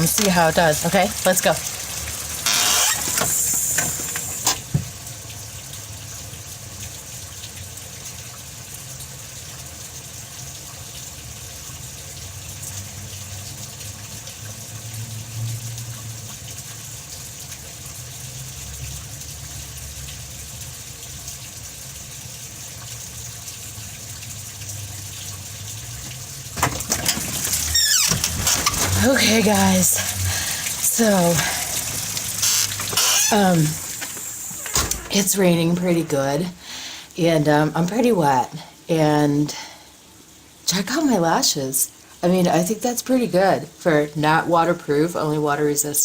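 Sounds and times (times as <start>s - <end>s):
steady rain hiss: 0.0s - 8.1s, 20.8s - 46.0s.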